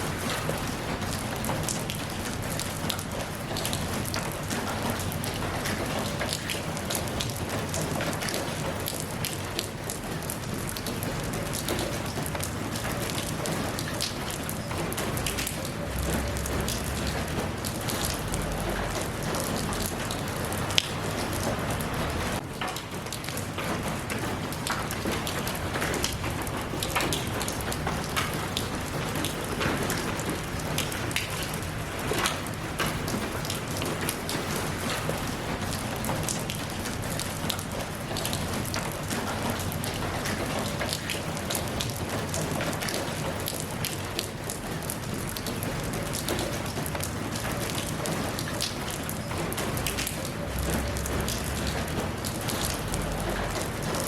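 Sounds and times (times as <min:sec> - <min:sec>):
rain falling: 0:00.0 - 0:54.0
raindrops ticking: 0:00.0 - 0:54.0.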